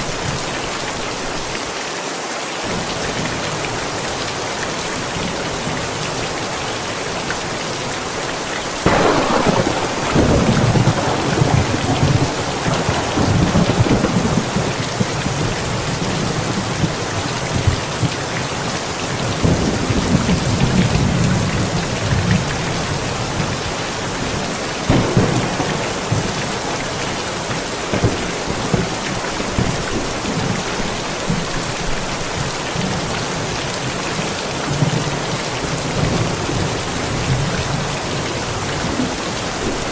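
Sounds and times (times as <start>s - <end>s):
heavy rain: 0.0s - 39.9s
thunder crack: 8.8s - 16.2s, 24.9s - 31.5s
thunder rumbling: 8.8s - 33.5s.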